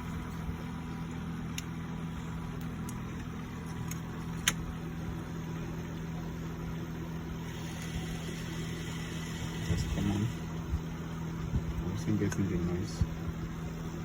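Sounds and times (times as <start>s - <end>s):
low electronic drone from laptop: 0.0s - 14.0s.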